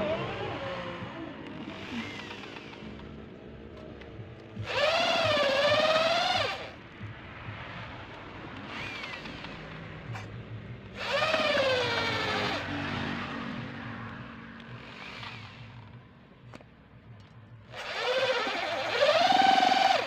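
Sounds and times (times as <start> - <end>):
electric drill motor whining: 0.0 - 3.2, 4.6 - 6.8, 8.7 - 9.6, 11.0 - 12.7, 14.8 - 16.0, 17.7 - 20.0.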